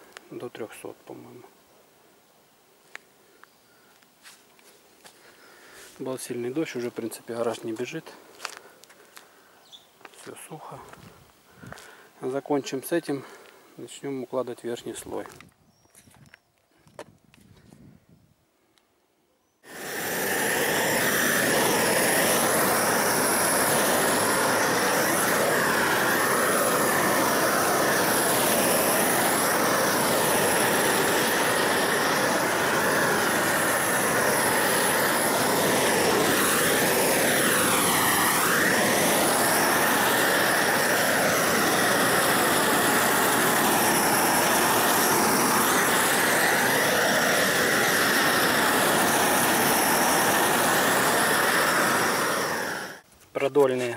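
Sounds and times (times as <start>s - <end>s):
gas torch burning: 19.6s - 53.1s.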